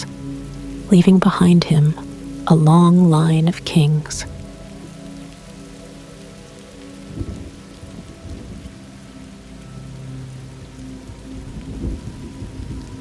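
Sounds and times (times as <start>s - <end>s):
steady rain falling: 0.0s - 13.0s
thunder rumbling: 7.1s - 8.8s, 11.4s - 13.0s.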